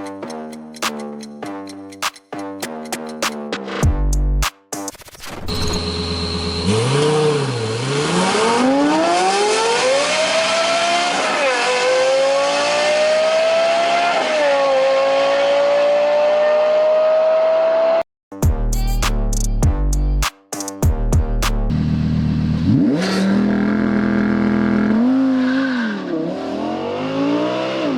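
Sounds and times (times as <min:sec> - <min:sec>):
car engine accelerating through gears: 0:05.7 - 0:18.0, 0:21.7 - 0:27.9.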